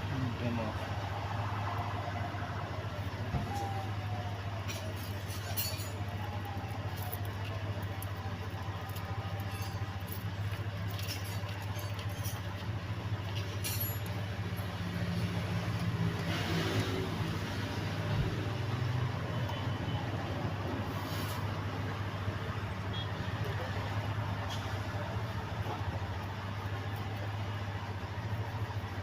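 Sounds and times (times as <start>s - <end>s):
low engine-like drone: 0.0s - 29.0s
light metallic clicks and scrapes: 4.6s - 14.6s, 24.4s - 25.0s.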